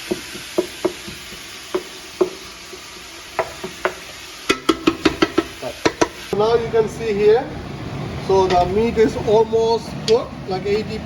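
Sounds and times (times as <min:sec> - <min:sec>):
meat sizzling in a pan: 0:00.0 - 0:06.4.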